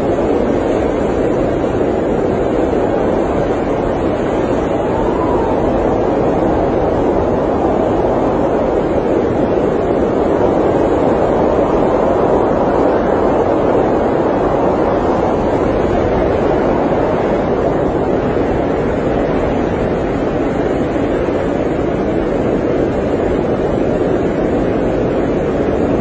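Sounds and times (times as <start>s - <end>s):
blizzard wind rushing: 0.0s - 26.0s.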